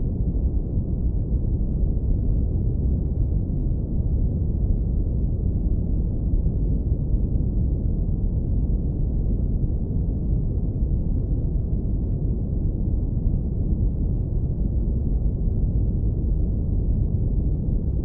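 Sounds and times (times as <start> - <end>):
deep brown noise rumble: 0.0 - 18.0.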